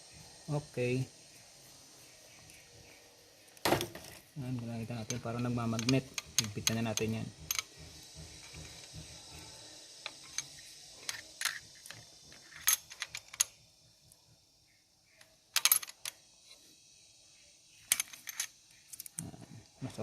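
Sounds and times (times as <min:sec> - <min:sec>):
wrench clicking on metal: 0:05.0 - 0:07.7.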